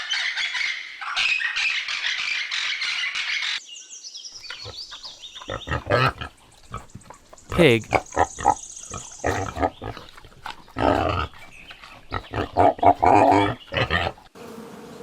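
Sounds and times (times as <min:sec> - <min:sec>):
pig grunting and squealing: 0:04.4 - 0:14.3.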